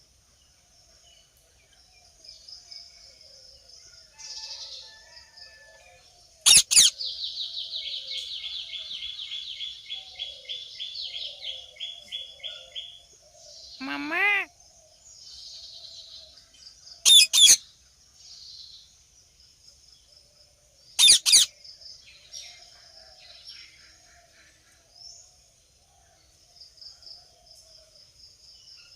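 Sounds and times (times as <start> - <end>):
small birds chirping: 6.4 - 20.1, 20.8 - 22.6
parakeet screeching: 6.5 - 6.9, 13.8 - 14.5, 17.1 - 17.6, 21.0 - 21.5.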